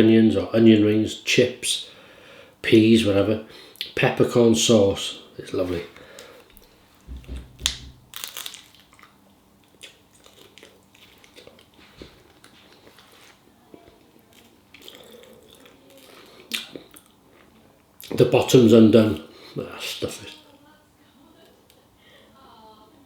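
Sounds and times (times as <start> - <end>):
person biting and chewing food: 6.5 - 13.4, 14.3 - 18.2
soft thumps: 7.0 - 8.1.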